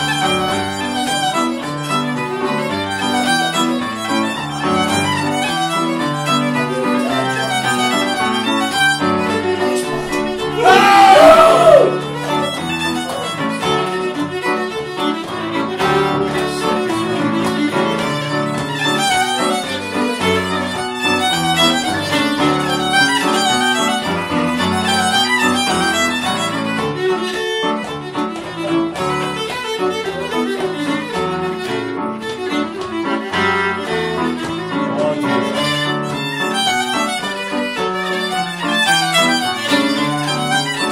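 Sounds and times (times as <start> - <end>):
fiddle-led folk dance tune: 0.0 - 40.9
loud voice: 10.6 - 11.9.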